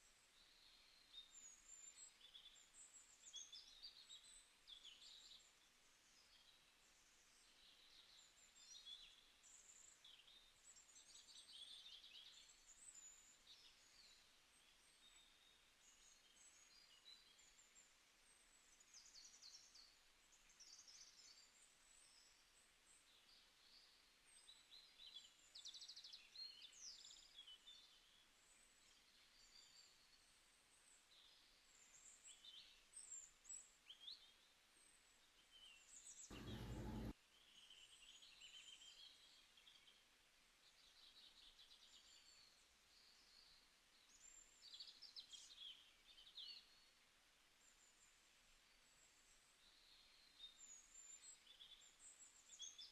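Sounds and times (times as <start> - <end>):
birds chirping and trilling: 36.3 - 37.1
short burst of noise: 36.3 - 37.1.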